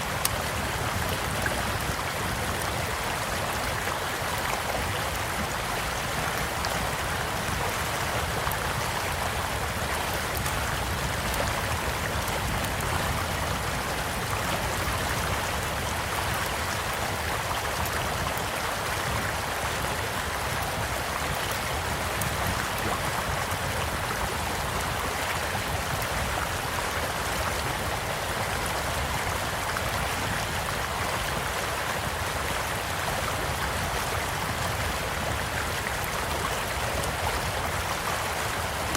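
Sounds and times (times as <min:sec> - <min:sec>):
campfire crackling: 0:00.0 - 0:05.5, 0:08.2 - 0:15.9
stream flowing: 0:00.0 - 0:38.9.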